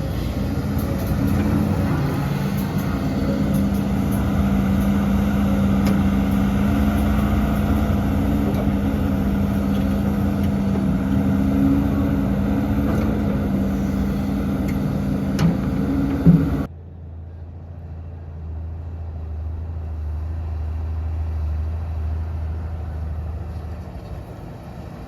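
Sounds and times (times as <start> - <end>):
heavy diesel engine droning: 0.0 - 25.0.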